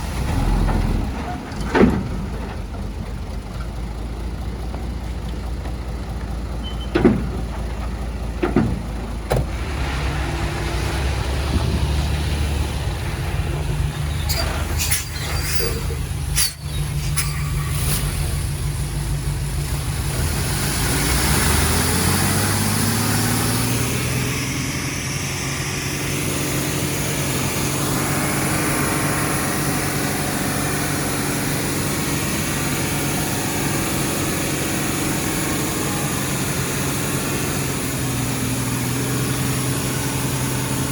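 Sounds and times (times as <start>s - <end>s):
heavy diesel machinery running: 0.0s - 40.9s
engine revving up: 9.4s - 40.9s
sharp high squeals: 13.9s - 18.2s.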